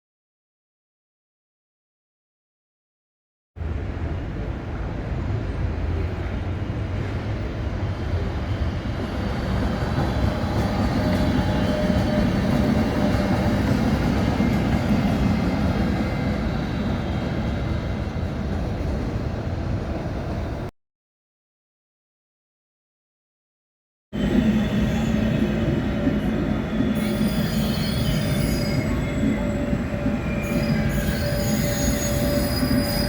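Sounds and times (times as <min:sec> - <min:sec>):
train rumbling on rails: 0:03.6 - 0:20.7, 0:24.2 - 0:33.0.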